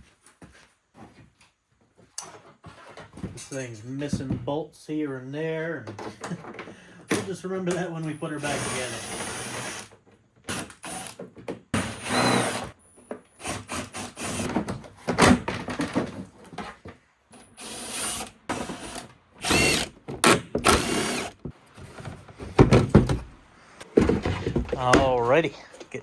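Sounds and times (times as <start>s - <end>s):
parts and tools clattering: 14.5s - 17.5s, 18.5s - 26.0s
impact wrench whining: 17.5s - 21.5s.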